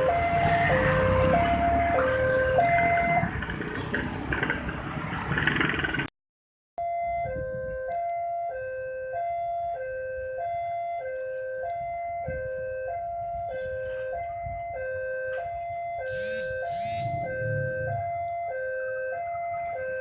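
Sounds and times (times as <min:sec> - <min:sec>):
level crossing two-tone alarm: 0:06.8 - 0:20.0
high-pitched squeal: 0:16.1 - 0:17.4.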